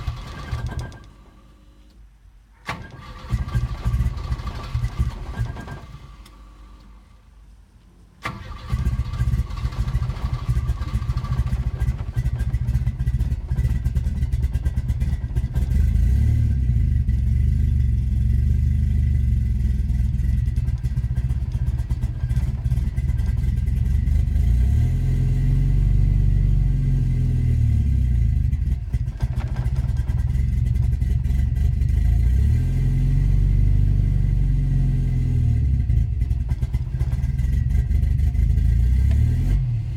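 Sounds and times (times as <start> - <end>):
car engine starting and revving: 0.0 - 1.3, 2.7 - 7.0, 8.2 - 39.9.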